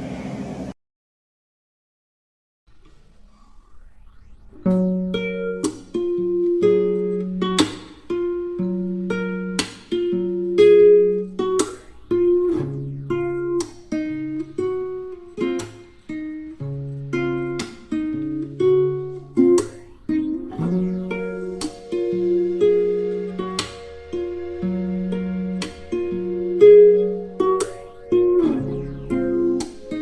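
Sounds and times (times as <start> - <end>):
plucked string instrument melody: 4.7 - 30.0.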